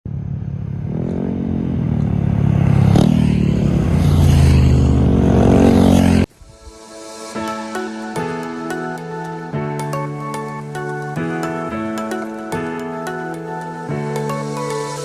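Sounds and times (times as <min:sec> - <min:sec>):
vehicle engine accelerating: 0:00.1 - 0:06.7.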